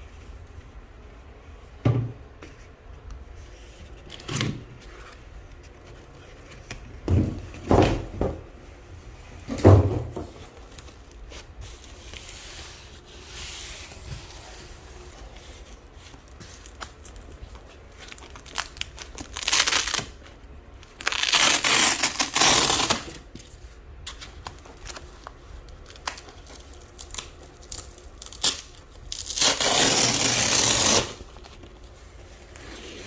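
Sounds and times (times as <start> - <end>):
cardboard rubbing and sliding: 32.1 - 33.0.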